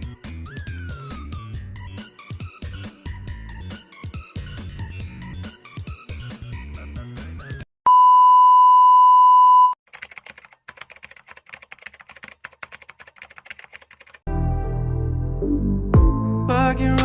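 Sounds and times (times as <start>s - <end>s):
music: 0.0s - 7.6s, 14.3s - 17.0s
electronic beep tone: 7.9s - 9.8s
faint rapid clicking: 9.9s - 14.2s.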